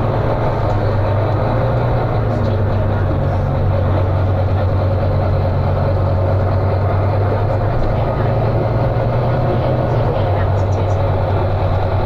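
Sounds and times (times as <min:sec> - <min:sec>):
bus diesel engine drone: 0:00.0 - 0:12.0.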